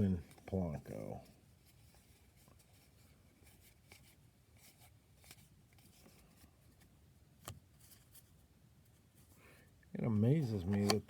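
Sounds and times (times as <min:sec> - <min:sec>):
cards rustling and ticking: 0:10.2 - 0:11.0.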